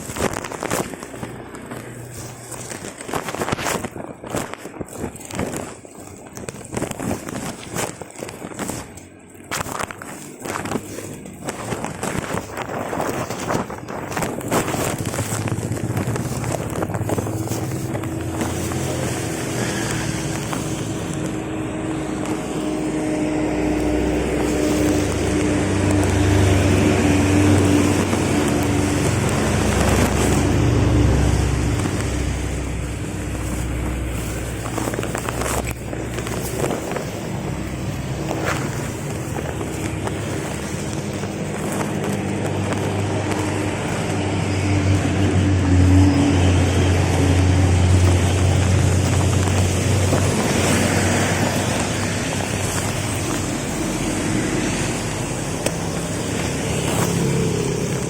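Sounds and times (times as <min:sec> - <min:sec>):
constant rushing noise: 0:00.0 - 0:58.0
motor vehicle humming: 0:00.0 - 0:58.0.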